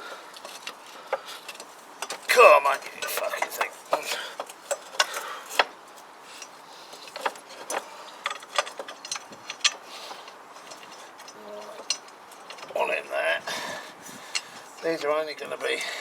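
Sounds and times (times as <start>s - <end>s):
metal clicks and knocks: 0.4s - 5.8s, 6.4s - 13.0s.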